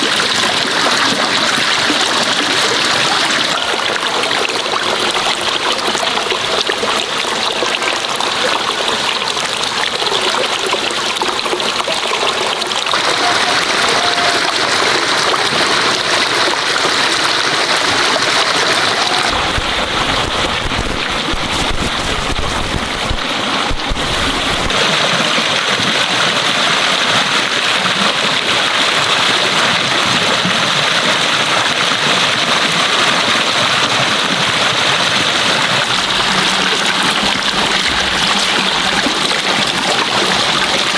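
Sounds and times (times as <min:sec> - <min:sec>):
running water rushing: 0:00.0 - 0:40.9
low rumble: 0:19.3 - 0:24.8.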